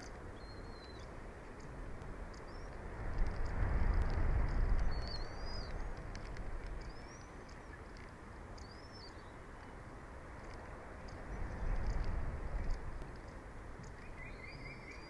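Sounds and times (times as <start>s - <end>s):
wind rumbling on microphone: 0.0s - 15.0s
faint bird chirps: 0.4s - 1.1s, 4.8s - 5.9s, 6.8s - 7.9s, 8.6s - 9.4s, 13.9s - 15.0s.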